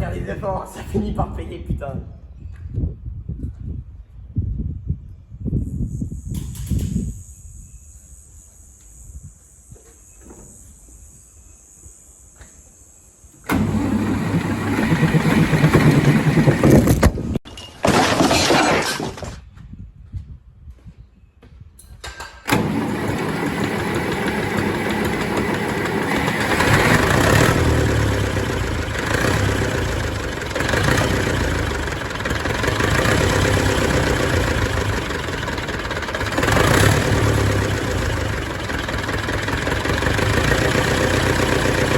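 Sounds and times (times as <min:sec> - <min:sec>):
tractor diesel engine running: 0:13.4 - 0:17.4, 0:22.5 - 0:41.9.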